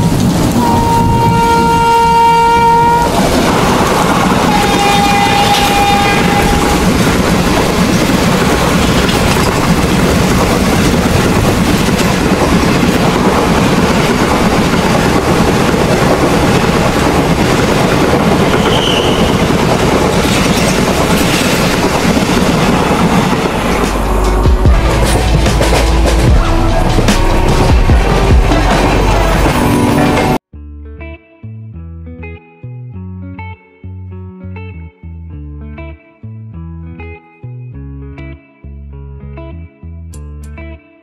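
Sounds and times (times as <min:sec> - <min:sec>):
train horn: 0:00.6 - 0:03.2, 0:04.3 - 0:06.9
train wheels clattering over rail joints: 0:05.2 - 0:26.3.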